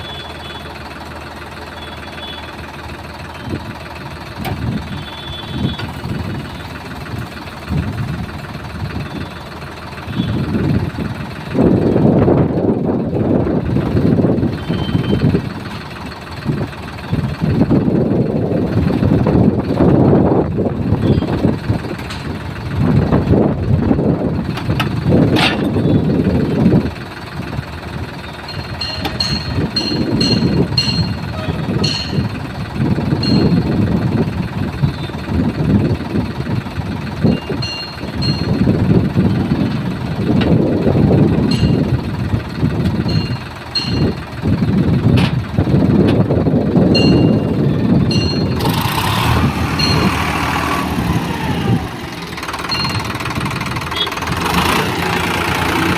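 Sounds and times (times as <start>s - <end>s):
tractor engine running: 0.0s - 55.9s
sharp clicks and knocks: 24.5s - 25.8s, 28.5s - 31.2s, 45.1s - 45.4s.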